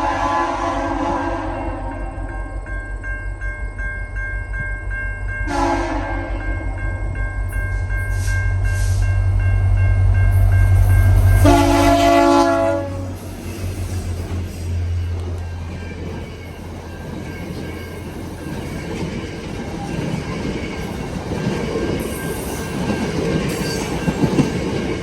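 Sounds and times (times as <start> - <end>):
train air horn blasts: 0.0 - 2.4, 5.5 - 6.7, 10.3 - 14.8
locomotive rumble: 0.0 - 25.0
level-crossing bell dinging: 1.8 - 11.7, 14.4 - 25.0.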